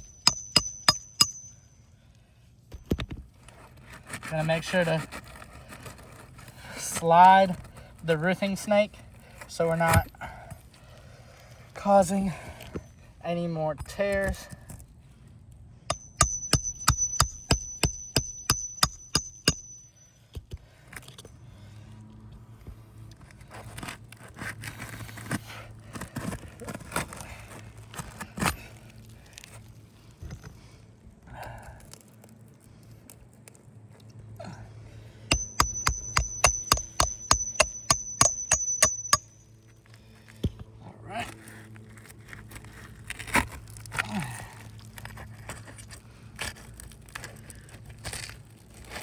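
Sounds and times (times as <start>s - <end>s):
hammer striking metal: 0.0s - 1.6s, 15.9s - 20.0s, 35.3s - 39.4s.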